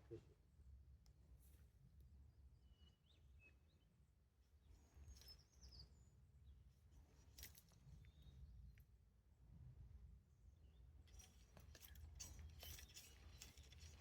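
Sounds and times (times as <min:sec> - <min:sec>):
faint high bird chirps: 0:04.7 - 0:06.2.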